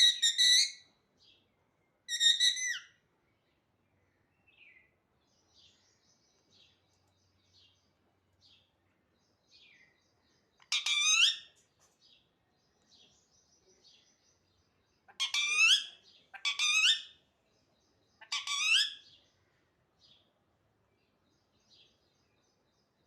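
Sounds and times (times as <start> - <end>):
parrot calling: 0.0 - 0.8, 2.1 - 2.9, 10.7 - 11.5, 15.1 - 17.2, 18.2 - 19.0.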